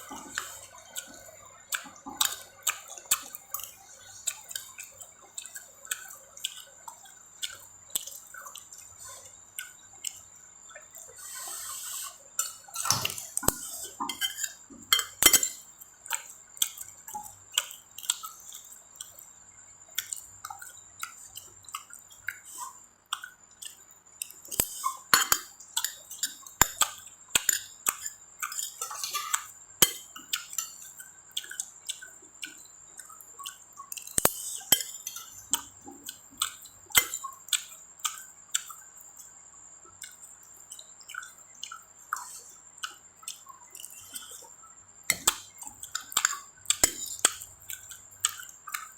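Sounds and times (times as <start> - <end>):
wet chewing smacks: 0.0 - 14.5, 15.3 - 19.3, 19.9 - 48.9
utensils clinking on a dish: 12.4 - 15.7, 24.6 - 31.0.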